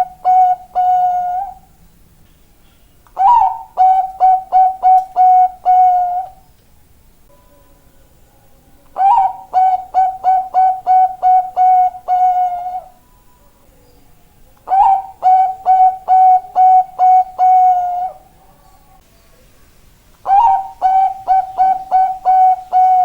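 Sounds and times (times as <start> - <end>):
dove cooing: 0.0 - 1.8, 3.2 - 6.4, 8.9 - 13.0, 14.6 - 18.9, 20.2 - 23.0.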